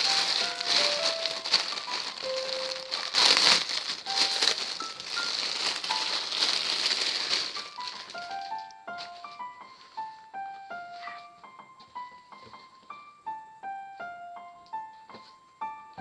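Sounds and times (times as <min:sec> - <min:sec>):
plastic packaging crinkling: 0:00.0 - 0:10.3
soft piano background music: 0:00.0 - 0:16.0.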